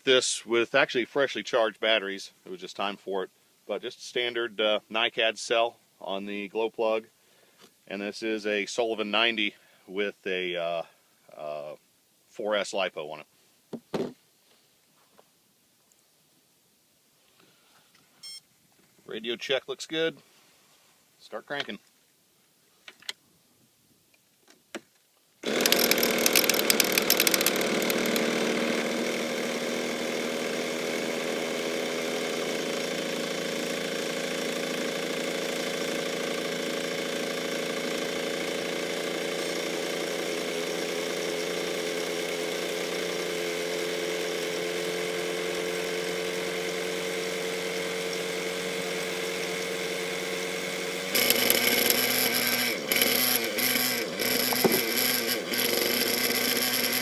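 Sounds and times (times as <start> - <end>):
electric starter cranking engine: 25.4 - 57.0
small engine starting: 25.4 - 57.0.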